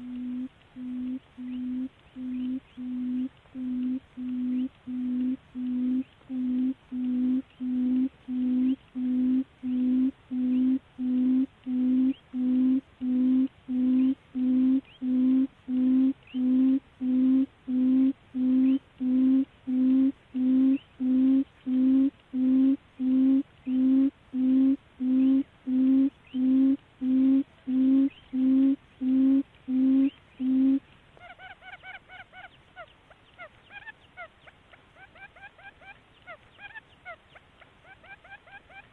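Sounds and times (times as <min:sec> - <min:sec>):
low hooting bird call: 0:00.0 - 0:32.9.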